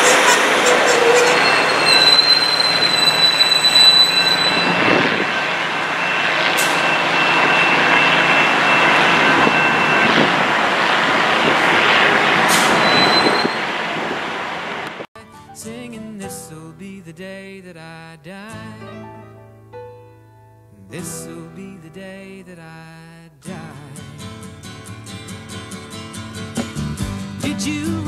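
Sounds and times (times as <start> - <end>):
train wheels rumbling: 0.0 - 15.0
wheels squealing on rails: 0.0 - 15.0, 24.4 - 26.8.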